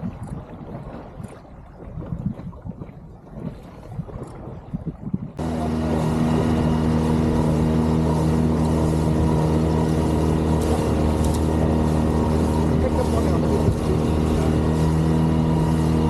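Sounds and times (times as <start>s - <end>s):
water lapping: 0.0s - 16.0s
outboard motor running: 5.4s - 16.0s.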